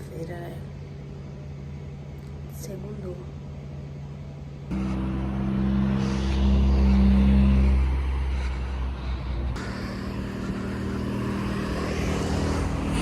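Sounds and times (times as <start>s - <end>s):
vehicle engine and road noise: 3.8s - 13.0s.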